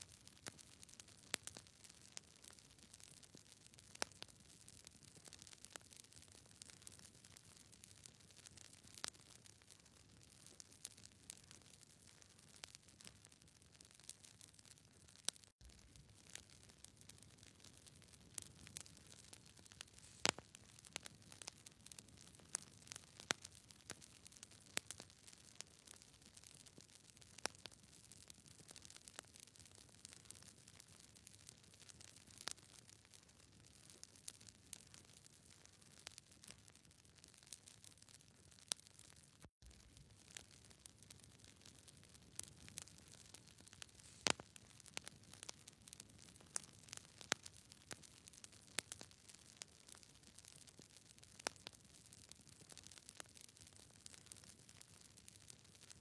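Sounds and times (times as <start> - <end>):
faint crackling clicks and pops: 0.0 - 56.0
faint hiss: 19.8 - 20.5, 43.9 - 44.4.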